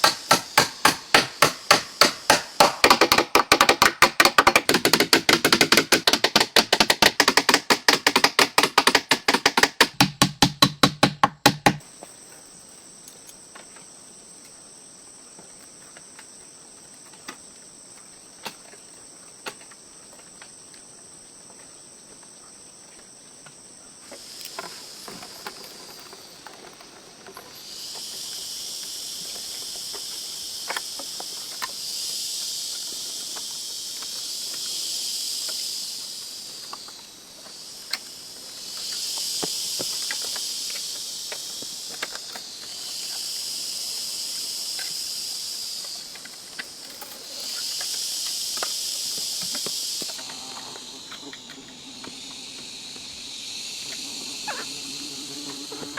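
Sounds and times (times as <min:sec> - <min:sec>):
insects buzzing loudly: 0:00.0 - 0:55.9
high trilling: 0:51.2 - 0:55.9.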